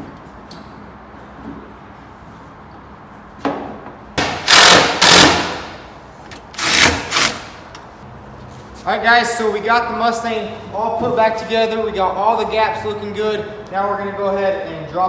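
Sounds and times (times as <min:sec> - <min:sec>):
rattling mechanical noise: 0:04.2 - 0:08.0.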